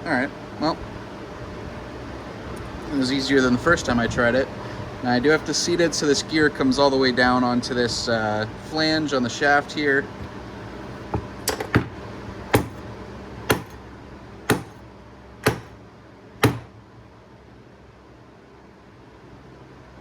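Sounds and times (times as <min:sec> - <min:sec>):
sharp knocks on metal gear: 0:11.1 - 0:12.8, 0:13.5 - 0:13.8, 0:14.5 - 0:14.8, 0:15.4 - 0:15.8, 0:16.4 - 0:16.8.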